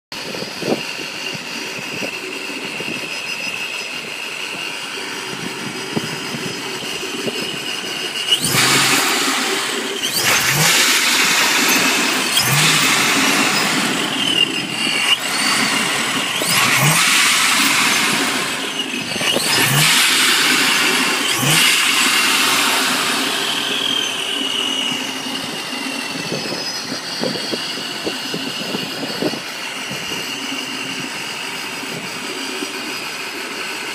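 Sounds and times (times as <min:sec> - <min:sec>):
car engine idling and revving: 0:00.0 - 0:33.9
supercharger whine: 0:00.1 - 0:33.9.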